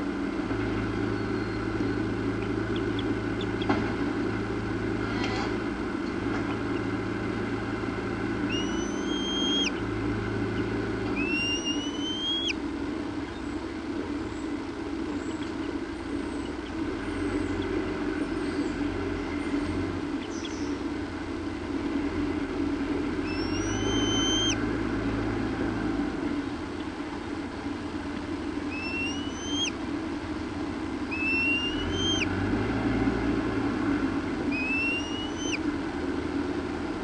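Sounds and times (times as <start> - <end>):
steady low rumble: 0.0 - 37.0
bird calling with rising whistles: 1.0 - 3.7, 8.4 - 9.9, 10.5 - 14.6, 15.2 - 20.8, 23.2 - 24.6, 28.6 - 29.8, 31.0 - 32.4, 34.4 - 35.7.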